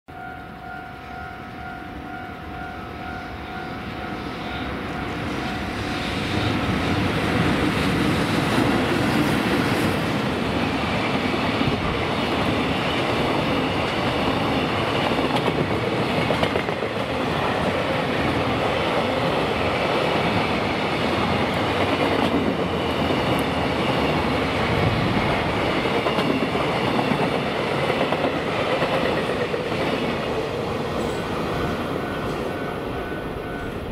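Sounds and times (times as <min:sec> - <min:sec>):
level-crossing alarm ringing: 0:00.1 - 0:10.0, 0:25.2 - 0:33.9
freight train passing: 0:00.1 - 0:33.9
train wheels clacking over rails: 0:04.9 - 0:33.9.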